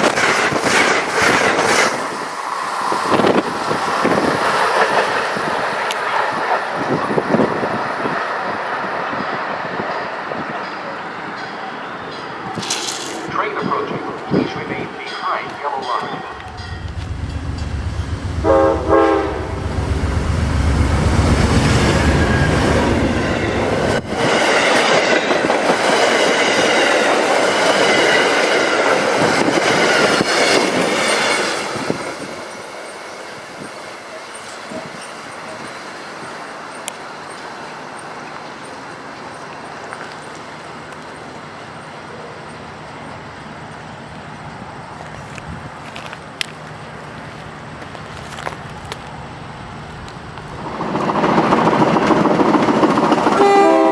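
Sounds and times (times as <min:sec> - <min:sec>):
train wheel and rail noise: 0:00.0 - 0:53.9
deep locomotive rumble: 0:13.2 - 0:28.0, 0:43.3 - 0:53.9
train horn: 0:18.4 - 0:19.8, 0:53.3 - 0:53.9.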